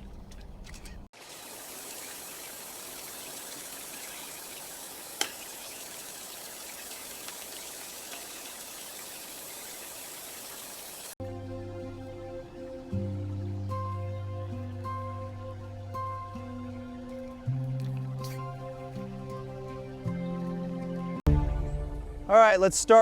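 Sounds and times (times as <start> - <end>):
running water rushing: 1.1 - 11.2.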